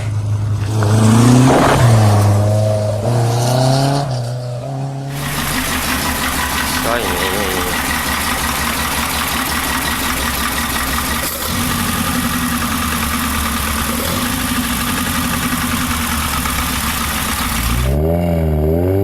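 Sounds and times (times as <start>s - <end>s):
car engine idling: 4.4s - 18.1s.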